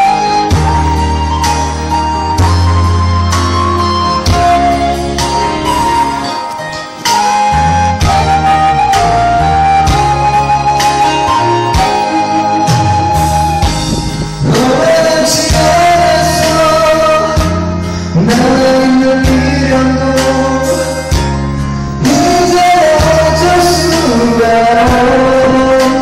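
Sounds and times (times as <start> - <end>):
karaoke backing track: 0.0 - 26.0
man singing a pop ballad: 14.4 - 26.0.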